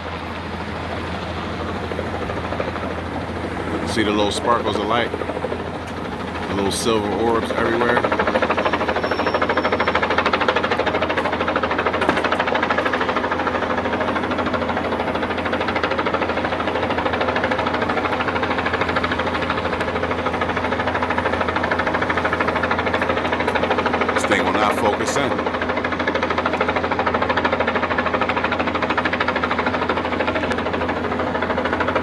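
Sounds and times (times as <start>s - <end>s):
helicopter rotor and engine drone: 0.0s - 32.0s.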